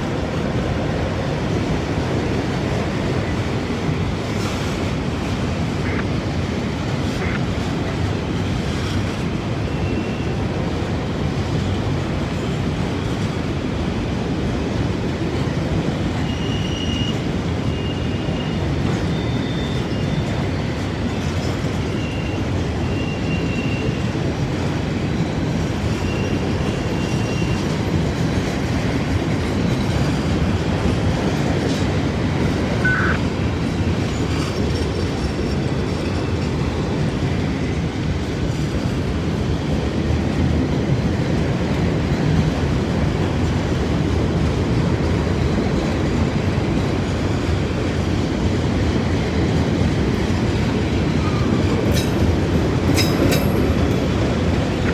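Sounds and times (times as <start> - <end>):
freight train rumble: 0.0 - 54.9
rail clatter: 0.0 - 54.9
high-pitched wheel squeals: 16.2 - 20.6, 32.8 - 33.2.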